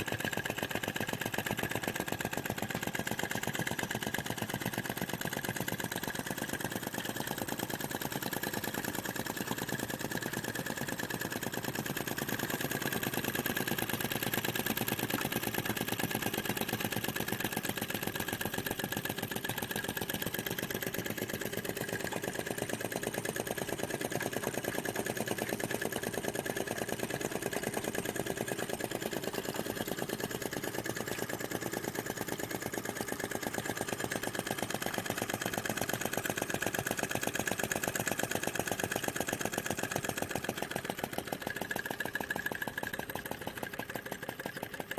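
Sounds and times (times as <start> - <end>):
model engine ticking: 0.0 - 44.9.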